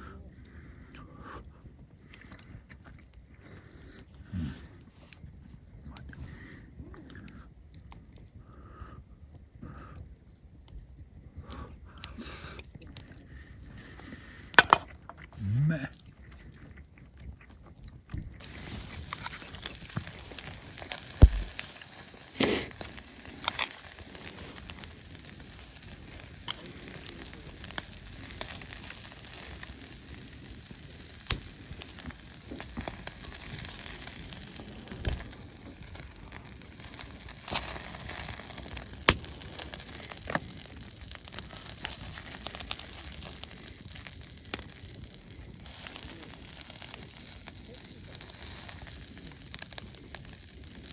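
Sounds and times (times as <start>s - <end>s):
sharp pops and crackles: 0.0s - 50.9s
food sizzling: 14.6s - 15.9s, 18.4s - 50.9s.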